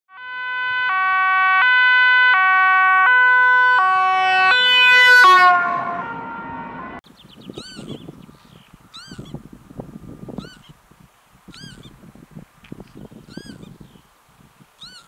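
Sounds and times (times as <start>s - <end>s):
two-tone emergency siren: 0.1s - 7.0s.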